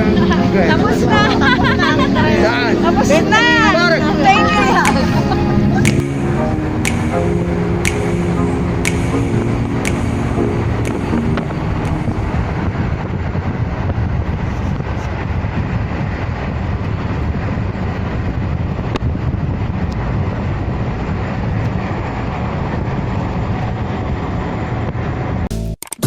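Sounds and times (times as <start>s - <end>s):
low engine drone: 0.0s - 15.0s
rushing wind: 0.0s - 25.5s.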